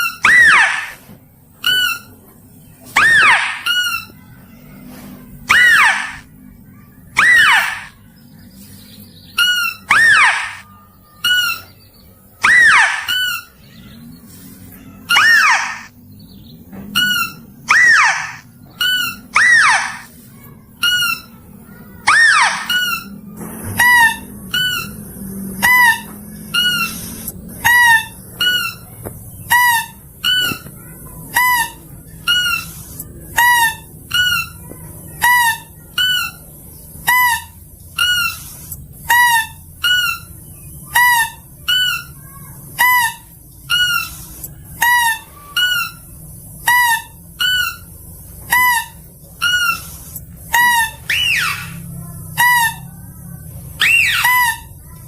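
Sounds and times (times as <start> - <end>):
squeaky animal call lure: 0.0 - 1.0, 3.0 - 4.2, 5.5 - 6.3, 7.2 - 8.0, 9.4 - 11.7, 12.4 - 13.6, 15.0 - 15.9, 17.0 - 20.1, 22.0 - 28.9, 40.9 - 53.1, 53.8 - 55.0.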